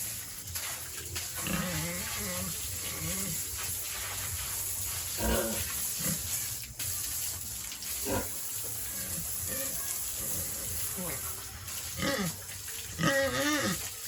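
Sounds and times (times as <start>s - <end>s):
steady hiss: 0.0s - 14.0s
pigs grunting: 1.3s - 3.7s, 5.0s - 6.5s, 8.0s - 14.0s.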